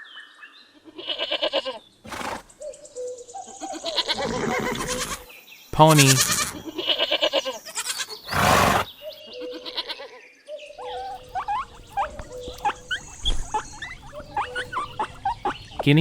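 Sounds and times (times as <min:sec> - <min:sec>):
pony blowing: 0:08.3 - 0:09.0.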